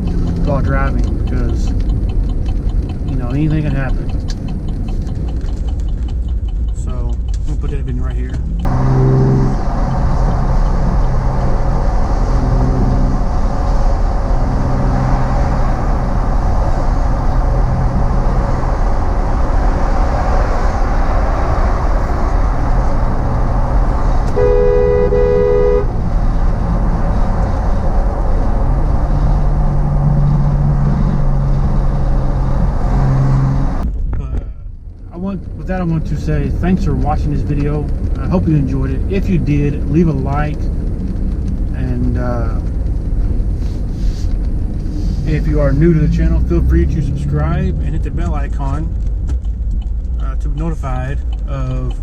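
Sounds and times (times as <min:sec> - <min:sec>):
car engine and road drone: 0:00.0 - 0:52.0
car horn: 0:08.7 - 0:09.7, 0:24.3 - 0:26.0.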